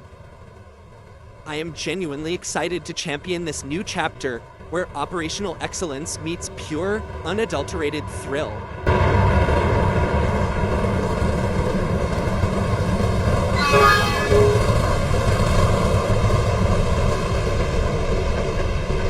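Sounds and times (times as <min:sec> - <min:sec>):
train rumbling past: 0:10.6 - 0:19.0
train horn blast: 0:13.6 - 0:15.3.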